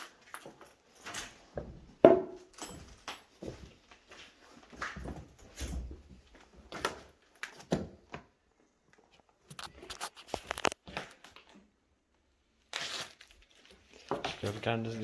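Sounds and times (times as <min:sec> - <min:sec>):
crunching and rustling: 0:12.7 - 0:15.0.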